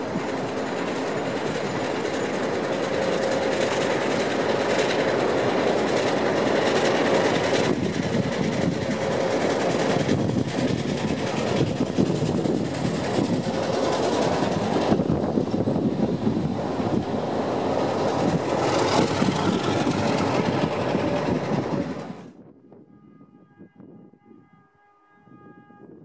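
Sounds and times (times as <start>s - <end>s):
train wheels clicking and rumbling: 0.0s - 22.4s
diesel locomotive engine: 0.0s - 22.5s.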